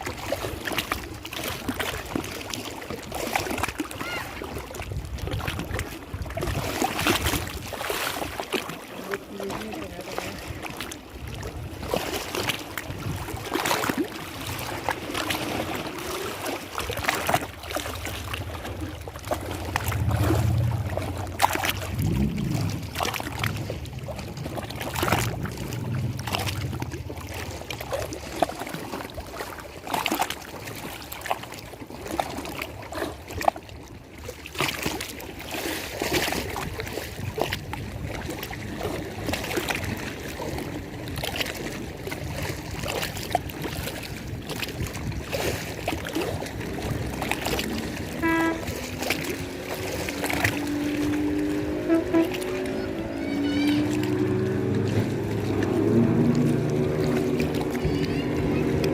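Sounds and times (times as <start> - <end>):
lake water lapping and splashing: 0.0 - 58.9
low hum: 18.4 - 27.7.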